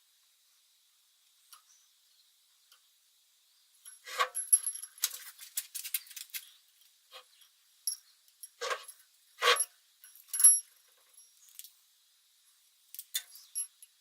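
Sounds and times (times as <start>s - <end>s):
small metal objects clinking: 3.8s - 6.6s, 7.8s - 11.8s, 12.9s - 14.0s.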